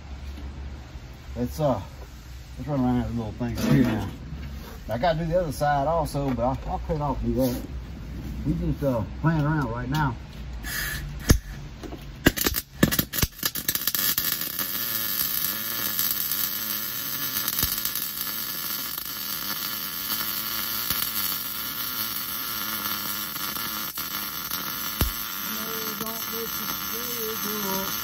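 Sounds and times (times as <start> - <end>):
welder arc crackling: 9.3 - 28.0
arc striking pops: 11.1 - 28.0.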